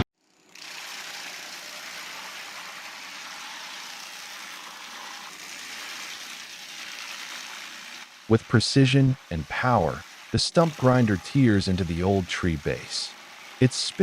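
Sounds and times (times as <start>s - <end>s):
heavy machinery running: 7.8s - 14.0s.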